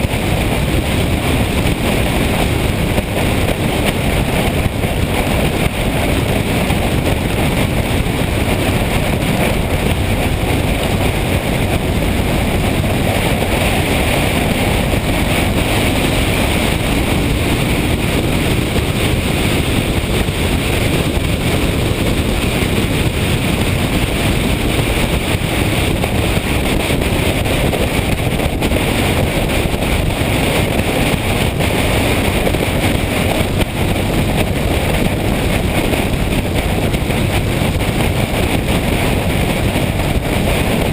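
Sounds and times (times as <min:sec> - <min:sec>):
motorcycle engine: 0:00.0 - 0:40.9
road noise: 0:00.0 - 0:40.9
wind rushing over microphone: 0:00.0 - 0:40.9.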